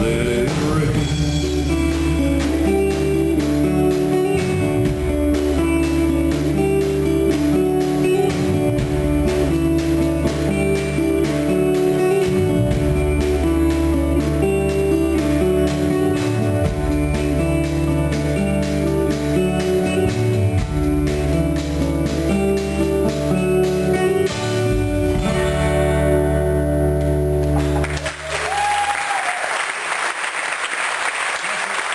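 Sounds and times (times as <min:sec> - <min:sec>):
drums keeping steady beat: 0:00.0 - 0:26.1, 0:27.0 - 0:28.8
strummed acoustic guitar: 0:00.0 - 0:28.0
bass guitar: 0:00.0 - 0:29.3
live band playing: 0:00.0 - 0:29.3
audience applause: 0:27.6 - 0:31.9.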